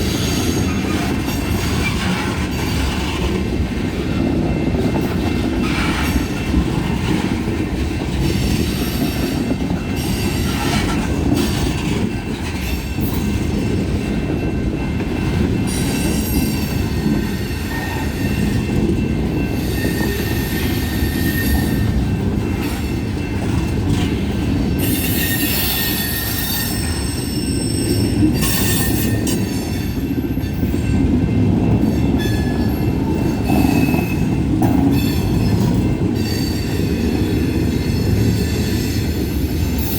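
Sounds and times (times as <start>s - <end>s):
wheel squeal: 19.6s - 21.9s, 24.8s - 29.4s.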